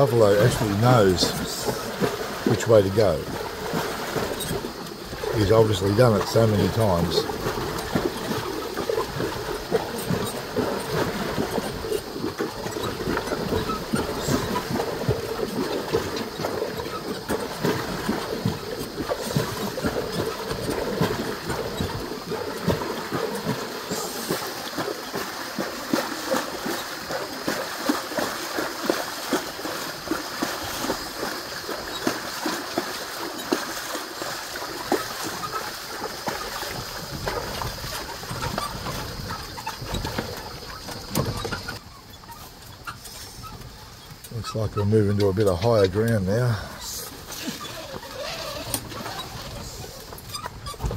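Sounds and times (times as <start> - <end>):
clatter of cart and hooves: 0.0 - 50.9
water splashing and sloshing: 0.0 - 50.9.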